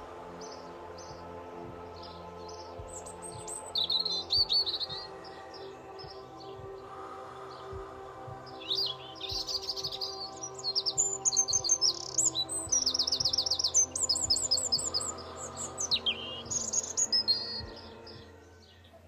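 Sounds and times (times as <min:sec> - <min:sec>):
soft background music: 0:00.0 - 0:19.0
songbird chirps and trills: 0:00.0 - 0:19.0.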